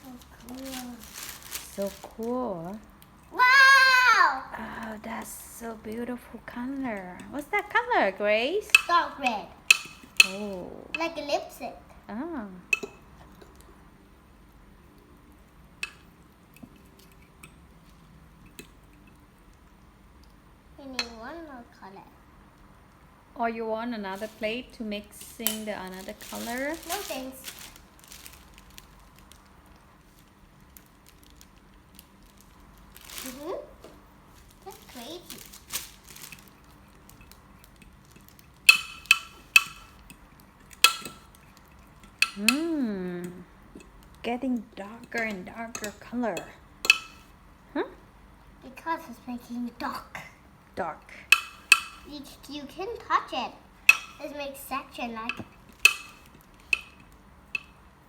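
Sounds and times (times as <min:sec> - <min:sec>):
utensil clicking against a plate: 0:09.6 - 0:10.4, 0:37.1 - 0:42.8, 0:45.0 - 0:47.3, 0:51.3 - 0:52.1, 0:53.8 - 0:54.3, 0:55.3 - 0:57.8.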